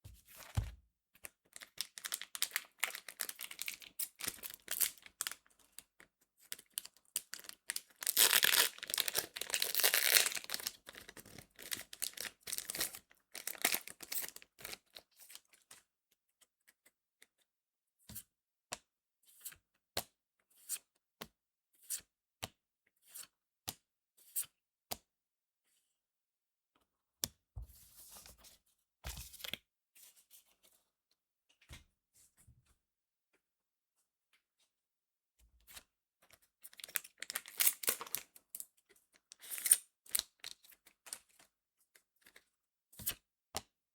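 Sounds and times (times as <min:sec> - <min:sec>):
foil wrapper tearing: 0:01.8 - 0:05.4, 0:07.2 - 0:14.7, 0:36.8 - 0:38.2.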